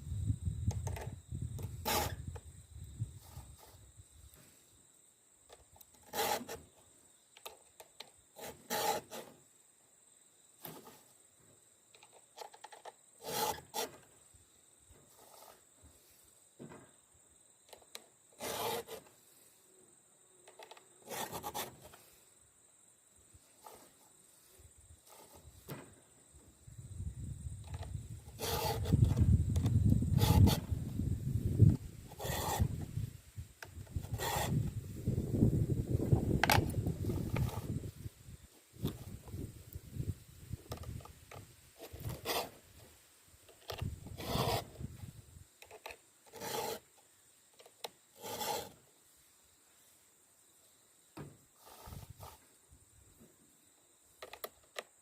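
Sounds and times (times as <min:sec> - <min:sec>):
file rasping on chainsaw chain: 0:01.8 - 0:02.2, 0:06.0 - 0:06.6, 0:08.4 - 0:09.3, 0:13.2 - 0:14.0, 0:18.4 - 0:19.1, 0:28.4 - 0:29.1, 0:30.2 - 0:30.7, 0:32.1 - 0:32.8, 0:34.0 - 0:34.6, 0:41.8 - 0:42.6, 0:44.1 - 0:44.7, 0:45.8 - 0:46.9, 0:48.2 - 0:48.8.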